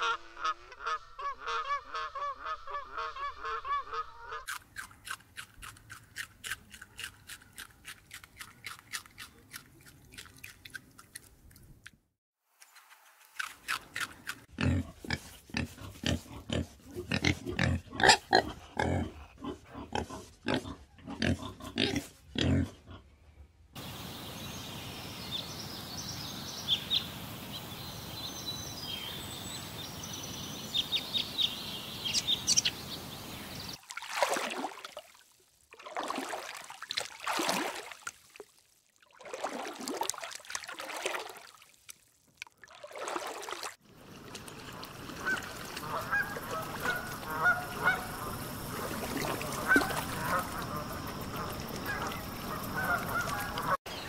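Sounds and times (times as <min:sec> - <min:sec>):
swan honking: 0:00.0 - 0:04.5, 0:45.2 - 0:53.8
pigs grunting: 0:14.5 - 0:23.1
birds chirping: 0:23.8 - 0:33.8, 0:44.8 - 0:54.0
outdoor hiss: 0:23.8 - 0:33.8.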